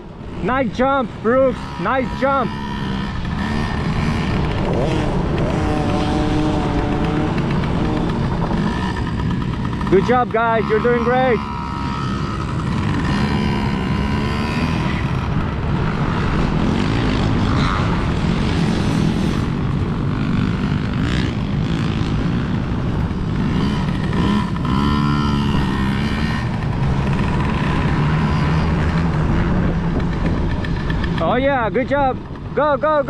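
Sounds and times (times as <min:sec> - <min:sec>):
dirt bike engines buzzing: 0:00.0 - 0:33.0.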